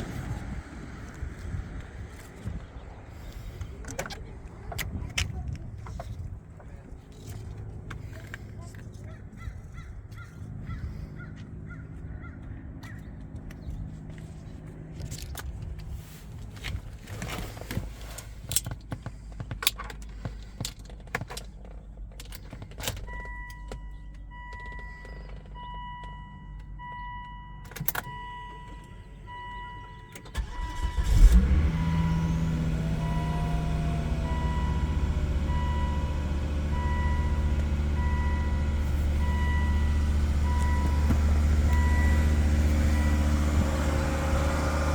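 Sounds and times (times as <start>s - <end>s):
car engine cranking and idling: 0.0s - 44.9s
car door and key clicks: 18.5s - 29.0s
warning chime beeping: 23.3s - 30.9s.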